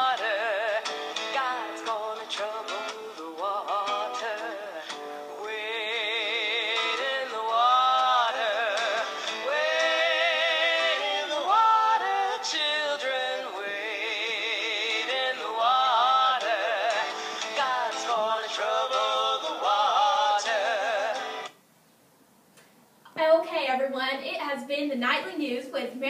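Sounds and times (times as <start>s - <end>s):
person singing with vibrato: 0.0s - 21.6s.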